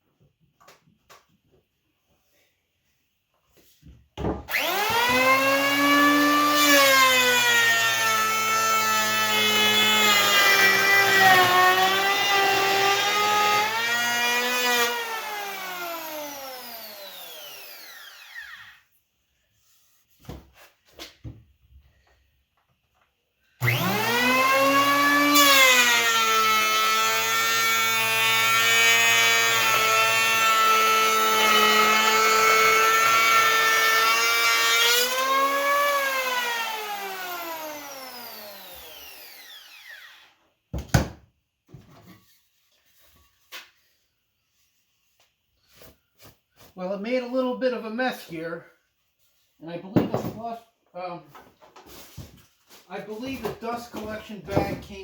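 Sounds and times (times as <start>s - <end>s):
electric hand planer running: 4.5s - 18.7s, 23.6s - 40.2s
planer winding down: 23.6s - 25.4s.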